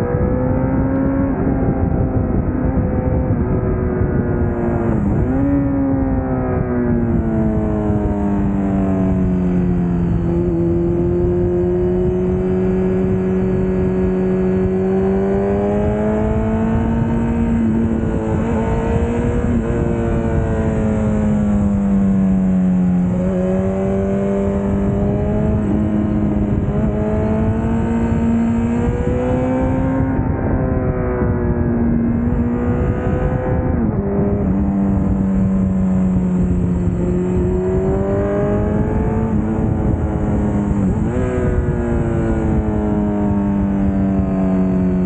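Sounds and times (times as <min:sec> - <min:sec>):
motorcycle engine revving: 0:00.0 - 0:45.0
wind rushing: 0:00.0 - 0:45.0.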